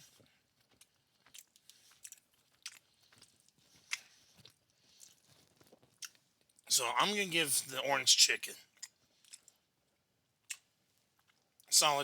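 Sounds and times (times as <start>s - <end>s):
crunchy chewing: 0.0s - 6.6s, 8.7s - 9.6s
wet mouth clicks: 3.9s - 4.1s, 10.4s - 10.7s.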